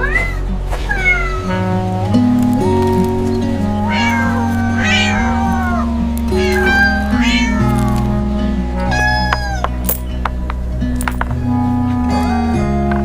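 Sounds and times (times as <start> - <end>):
cat meowing: 0.0 - 1.7, 3.8 - 10.0
background music with bass: 0.0 - 13.0.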